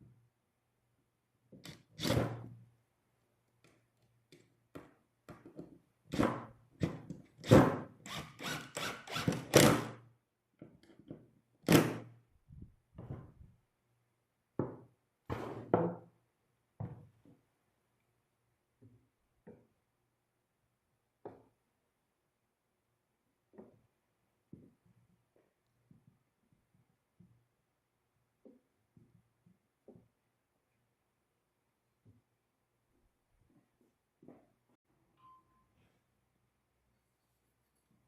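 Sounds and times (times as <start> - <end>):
wooden knocks and thunks: 12.9 - 13.5, 16.8 - 17.2.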